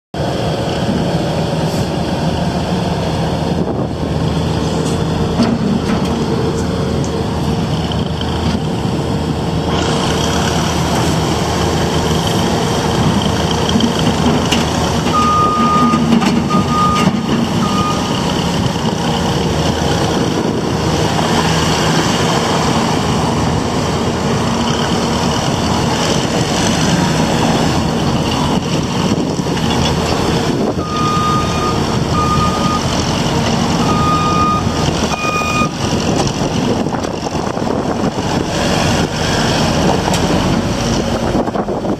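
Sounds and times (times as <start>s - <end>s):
diesel engine running: 0.2s - 41.9s
reversing alarm beeps: 15.1s - 18.2s, 30.8s - 32.9s, 33.8s - 35.8s.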